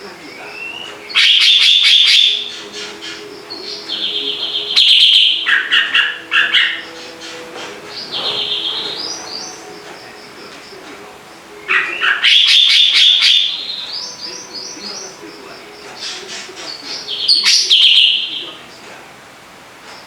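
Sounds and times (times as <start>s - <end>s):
songbird chattering trills: 0.0s - 18.9s.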